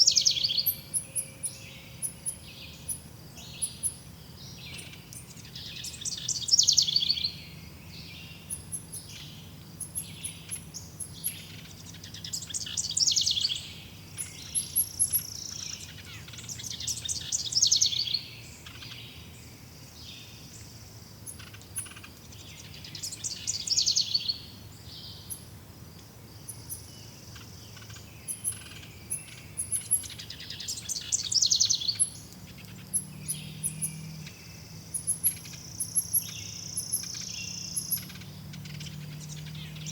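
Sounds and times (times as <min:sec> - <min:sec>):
thin high bird chirps: 0:00.0 - 0:07.4, 0:08.0 - 0:19.0, 0:26.4 - 0:39.9
bird trilled song: 0:00.0 - 0:25.5, 0:26.4 - 0:39.9.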